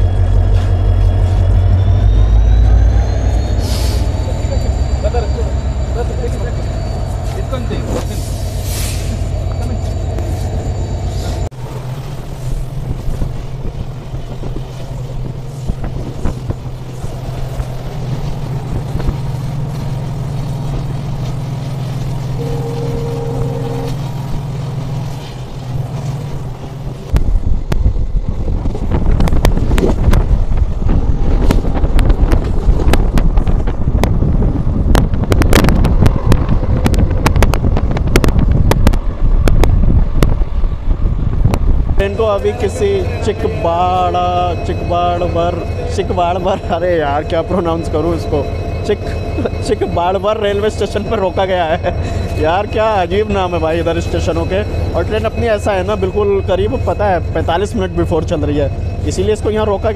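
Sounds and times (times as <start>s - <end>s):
steady tone: 0.0s - 11.6s, 22.3s - 25.6s, 42.0s - 59.9s
passenger train running: 0.0s - 59.9s
wind buffeting microphone: 12.2s - 21.3s, 24.0s - 42.1s.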